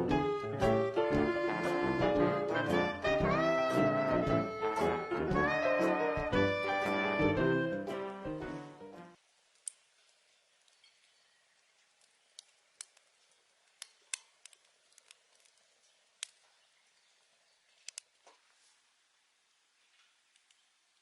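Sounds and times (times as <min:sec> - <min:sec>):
background music: 0:00.0 - 0:09.2
wood fire crackling: 0:00.0 - 0:21.0
faint hiss: 0:08.6 - 0:21.0.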